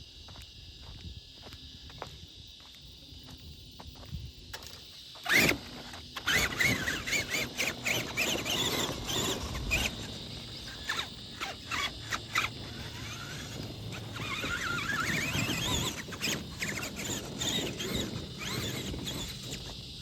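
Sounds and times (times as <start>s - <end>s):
electric motor whining: 5.1s - 20.0s.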